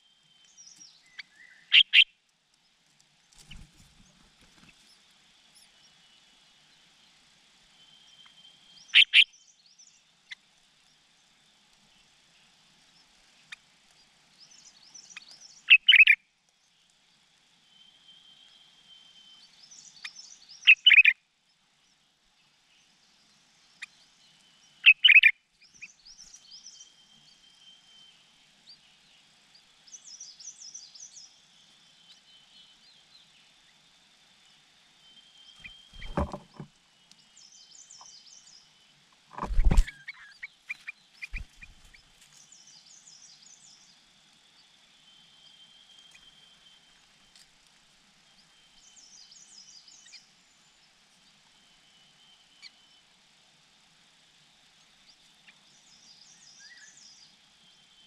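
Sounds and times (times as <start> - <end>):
loud bird calls: 8.9 - 9.3, 15.7 - 16.2, 24.8 - 25.3, 35.6 - 36.7
nestlings begging chirps: 14.9 - 16.2, 24.9 - 26.6, 35.5 - 36.7, 39.4 - 43.4
dull knocks: 36.0 - 36.7.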